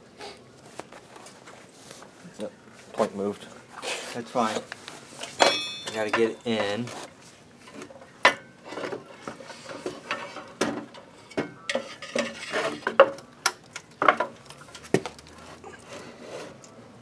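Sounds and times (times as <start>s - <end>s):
metal parts and tools clattering: 4.4s - 6.9s.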